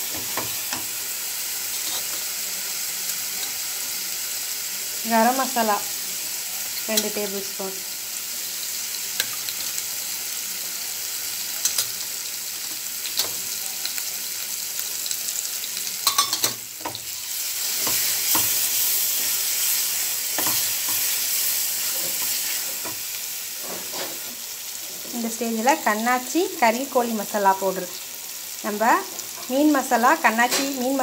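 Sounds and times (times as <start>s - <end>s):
masala sizzling in oil: 0.0s - 31.0s.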